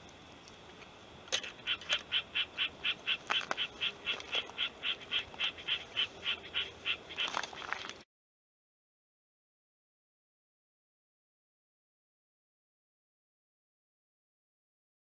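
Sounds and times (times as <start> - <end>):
animal calling rapidly: 1.6 - 7.9.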